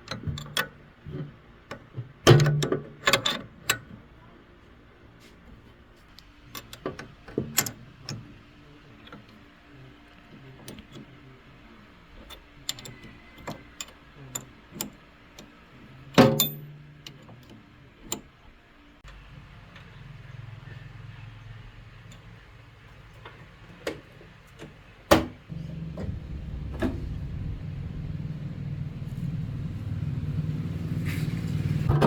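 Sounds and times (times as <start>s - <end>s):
metallic clicks and knocks of tools: 16.2s - 18.3s
low steady hum: 25.5s - 32.0s.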